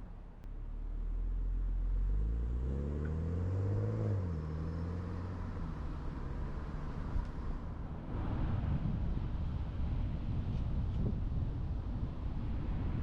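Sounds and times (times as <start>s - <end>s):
road and tyre rumble: 0.0s - 13.0s
vehicle engine revving: 1.9s - 7.4s.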